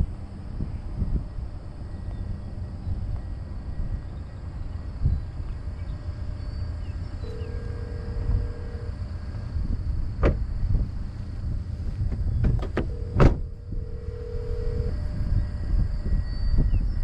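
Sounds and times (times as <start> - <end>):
steady low rumble: 0.0 - 17.0
telephone ringback tone: 7.2 - 9.1, 12.8 - 15.5.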